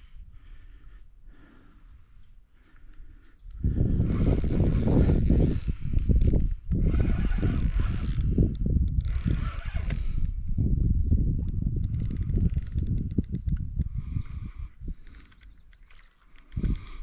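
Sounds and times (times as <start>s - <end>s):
fishing reel winding: 4.0s - 10.4s, 11.4s - 14.3s, 14.9s - 17.0s.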